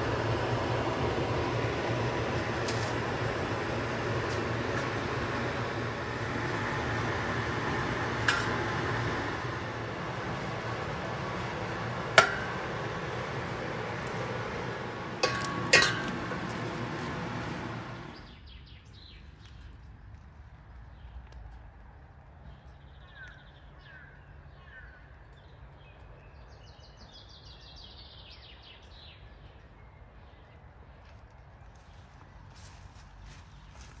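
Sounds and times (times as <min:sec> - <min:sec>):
steady noise: 0:00.0 - 0:18.3
trilled birdsong: 0:00.5 - 0:19.7.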